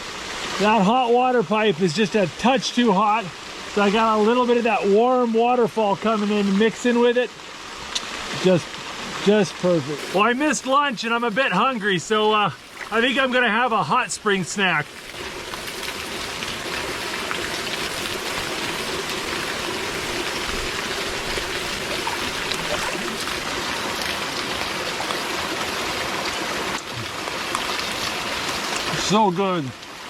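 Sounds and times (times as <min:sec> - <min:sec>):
water pouring into pool: 0:10.0 - 0:29.2.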